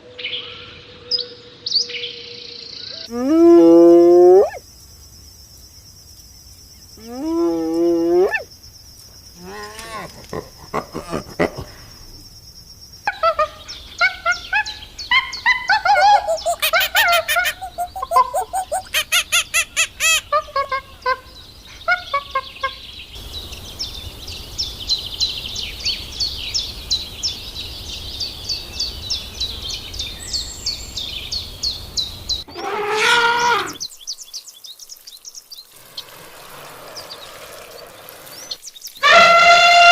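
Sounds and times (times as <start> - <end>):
birds calling: 13.0 - 39.9
loud drawn-out bird call: 32.5 - 33.9, 36.4 - 39.9.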